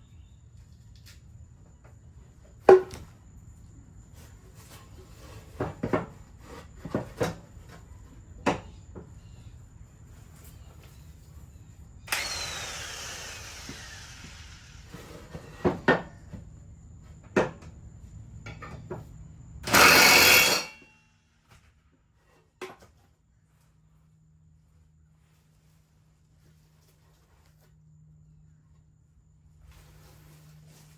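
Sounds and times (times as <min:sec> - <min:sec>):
power tool burst: 0:12.1 - 0:15.0, 0:19.6 - 0:20.8
hiss: 0:12.2 - 0:15.4.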